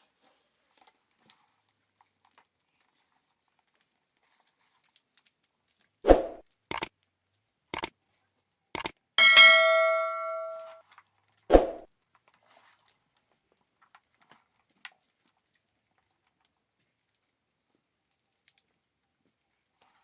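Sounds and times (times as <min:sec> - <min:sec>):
kitchenware knocking and clinking: 0:09.2 - 0:10.7
metallic ringing strike: 0:09.2 - 0:10.8.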